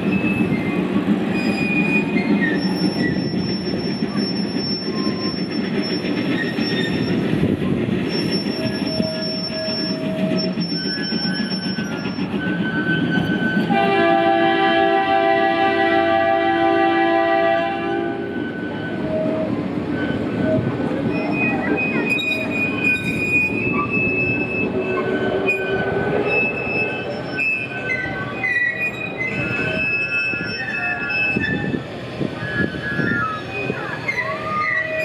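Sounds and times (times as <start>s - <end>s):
wheel squeal: 0.0s - 7.4s, 8.0s - 13.8s, 18.2s - 35.0s
train rumbling on track: 0.0s - 35.0s
train horn: 13.6s - 18.4s.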